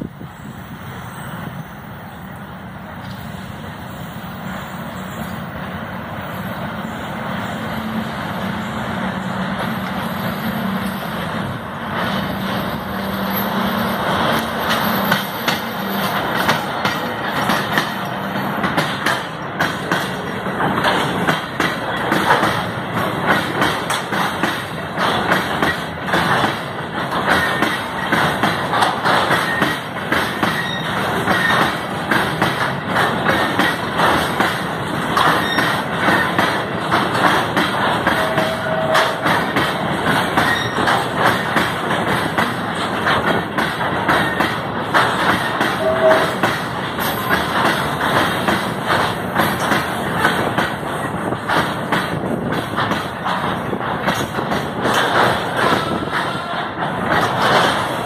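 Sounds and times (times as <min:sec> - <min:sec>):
locomotive engine drone: 0:00.0 - 0:23.4
wheels clattering on rails: 0:07.4 - 0:58.0.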